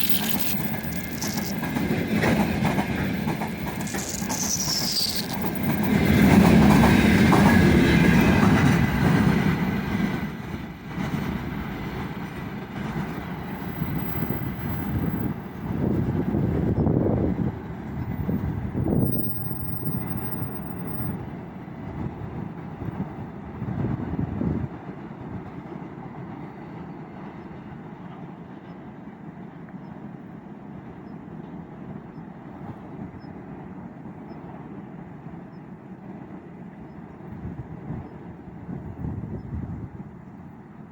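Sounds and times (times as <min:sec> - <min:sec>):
train wheels clacking over rail joints: 0:00.0 - 0:15.9
freight train wagons on rails: 0:00.0 - 0:40.9.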